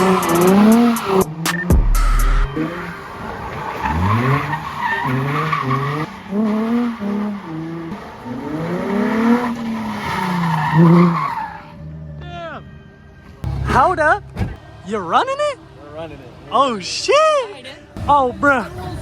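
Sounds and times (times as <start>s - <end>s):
tyres skidding on wet pavement: 0.0s - 1.8s, 2.5s - 12.1s
car engine revving: 0.0s - 12.2s, 13.4s - 17.3s.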